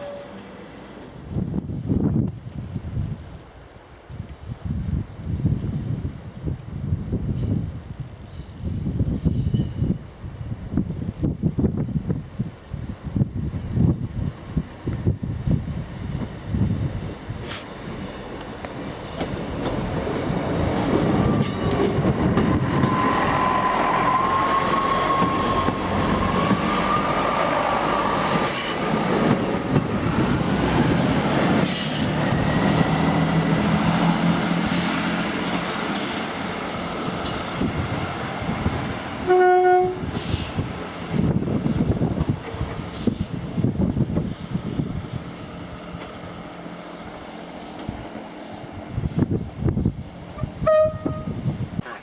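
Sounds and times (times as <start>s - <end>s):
train horn blast: 0.0s - 0.5s, 39.2s - 40.2s, 50.4s - 51.5s
diesel train passing: 0.0s - 4.1s, 13.1s - 52.0s.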